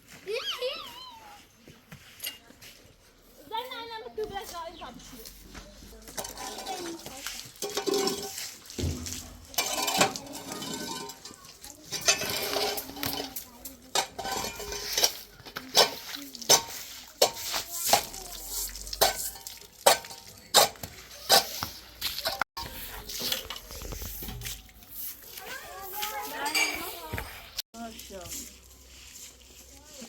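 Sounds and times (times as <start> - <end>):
hard objects clinking and scraping: 5.2 - 27.6.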